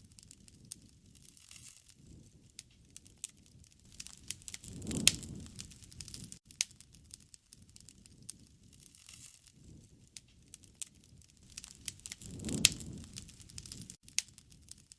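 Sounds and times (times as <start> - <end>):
low rumble of flame: 0.0 - 14.9
wood fire crackling and popping: 0.0 - 14.9.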